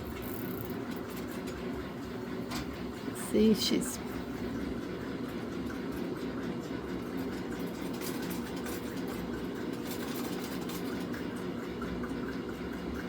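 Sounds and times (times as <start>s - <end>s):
treadle sewing machine running: 0.0s - 3.2s, 4.2s - 13.0s.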